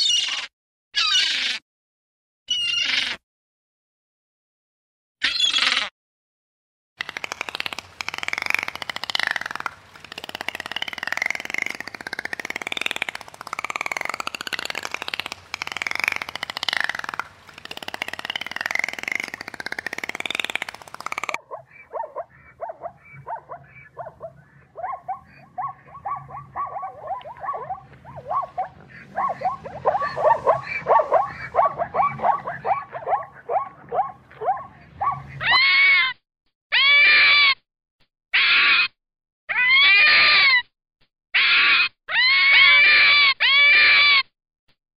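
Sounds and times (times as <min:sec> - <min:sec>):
animal calls rising and falling: 0:00.0 - 0:01.6, 0:02.5 - 0:03.2, 0:05.2 - 0:05.9, 0:07.0 - 0:37.6, 0:39.5 - 0:40.6, 0:41.4 - 0:44.2
clear animal calls: 0:00.0 - 0:01.6, 0:02.5 - 0:03.2, 0:05.2 - 0:05.9, 0:07.2 - 0:37.6, 0:38.4 - 0:40.6, 0:41.4 - 0:44.3
animal chattering notes: 0:07.0 - 0:35.9.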